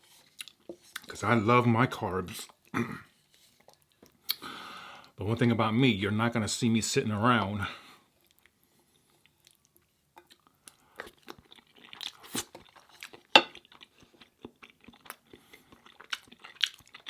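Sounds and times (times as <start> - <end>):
chewing food with mouth clicks: 8.2 - 17.0.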